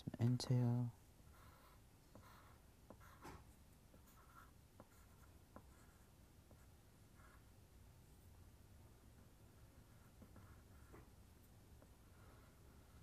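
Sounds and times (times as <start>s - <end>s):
drawing strokes on paper: 1.2s - 7.6s, 9.0s - 11.2s, 11.8s - 13.0s.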